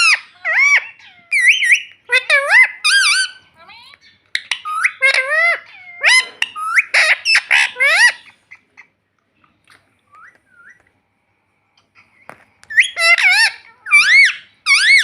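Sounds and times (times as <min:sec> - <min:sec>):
parrot squawking and whistling: 0:00.0 - 0:03.5, 0:04.3 - 0:08.9, 0:09.7 - 0:10.9, 0:12.7 - 0:15.0
faint bird chirps: 0:09.5 - 0:11.0.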